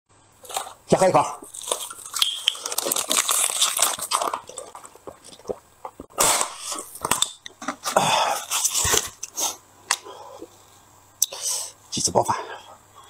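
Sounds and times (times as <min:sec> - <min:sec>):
chewing and mouth sounds: 0:01.4 - 0:07.8.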